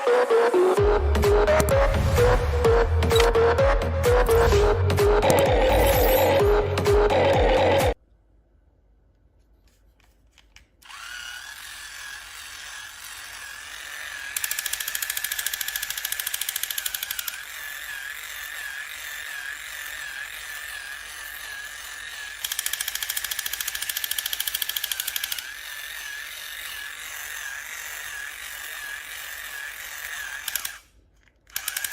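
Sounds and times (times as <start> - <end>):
small electric motor whirring: 10.4 - 31.9.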